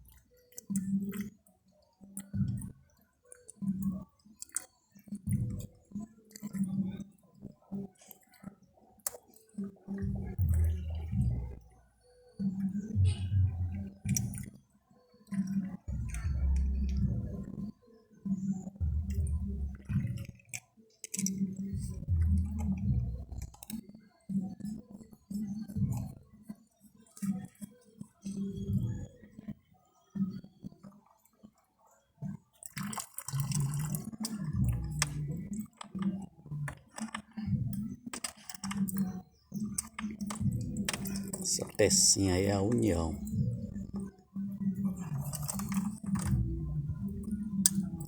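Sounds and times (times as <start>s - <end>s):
plastic pipe fittings clicking: 32.8s - 42.0s, 47.6s - 48.0s
low background sound: 34.5s - 44.0s.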